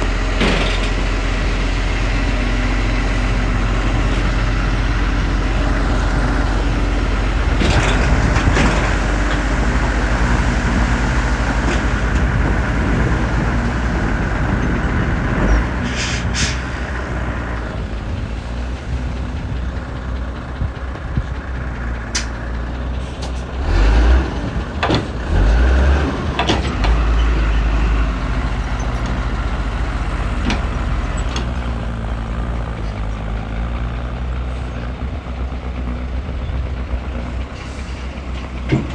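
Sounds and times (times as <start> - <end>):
heavy diesel machinery running: 0.0 - 38.9
short hisses: 15.9 - 16.7.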